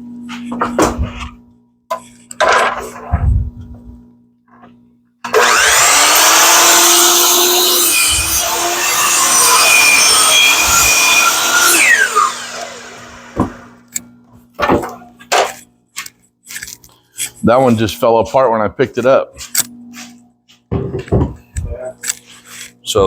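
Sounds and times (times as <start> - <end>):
power saw cutting wood: 5.3 - 13.9
saw blade spinning down whine: 5.3 - 13.9.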